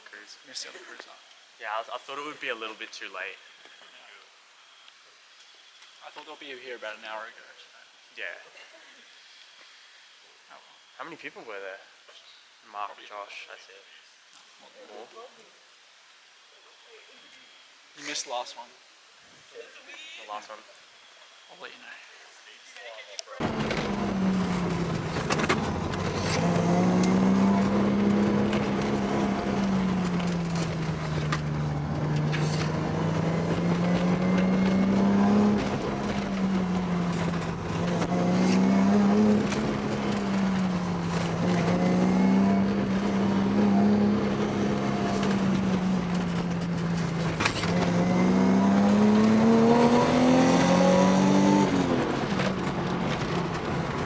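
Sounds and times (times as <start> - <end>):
car engine revving: 23.4 - 54.0.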